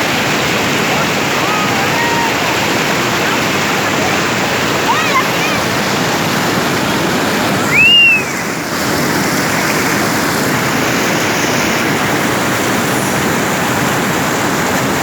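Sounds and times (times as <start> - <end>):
waterfall rushing: 0.0 - 15.0
short whistle: 7.7 - 8.4.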